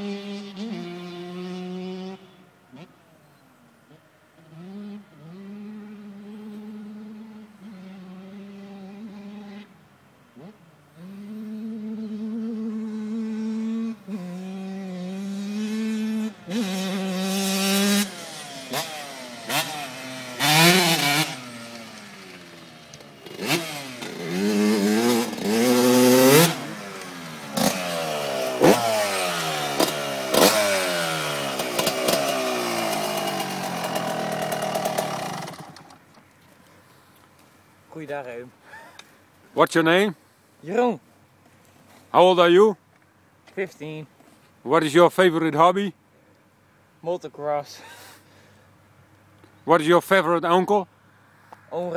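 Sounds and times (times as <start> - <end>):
two-stroke motorcycle engine revving: 0.0 - 2.9, 4.4 - 9.7, 10.4 - 36.0.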